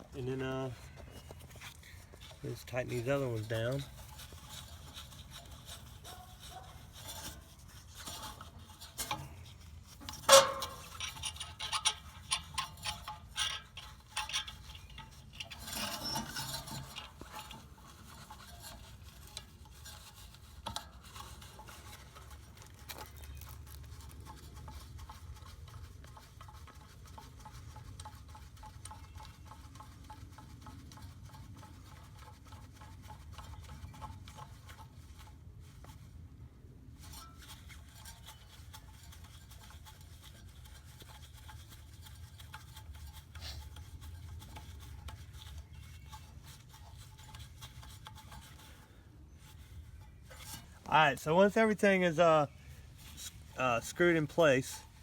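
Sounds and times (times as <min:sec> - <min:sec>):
metal tool parts clinking and scraping: 0:10.0 - 0:17.6.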